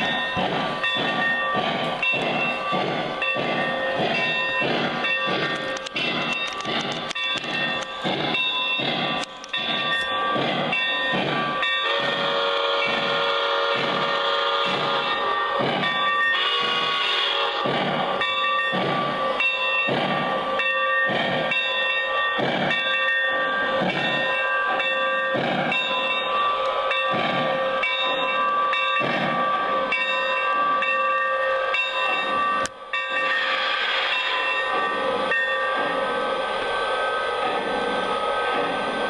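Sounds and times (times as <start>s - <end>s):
steam hiss: 0.0s - 28.4s, 31.5s - 39.0s
model steam locomotive chuffing: 0.0s - 39.0s
steady high tone: 18.1s - 39.0s.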